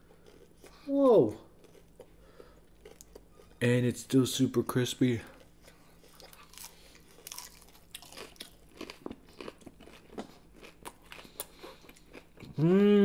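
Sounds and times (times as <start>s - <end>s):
crunchy chewing: 0.0s - 0.8s, 1.6s - 3.6s, 5.3s - 12.6s.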